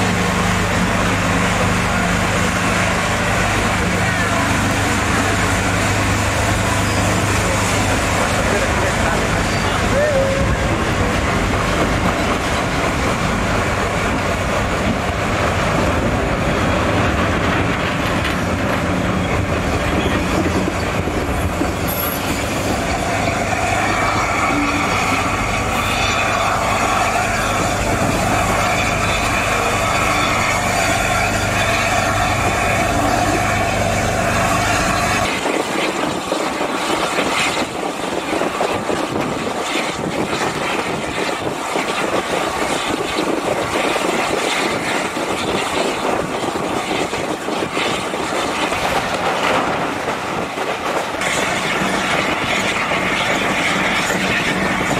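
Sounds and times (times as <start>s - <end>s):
wheels rumbling on rail: 0.0s - 54.9s
high squeal: 4.0s - 11.1s, 20.0s - 35.4s.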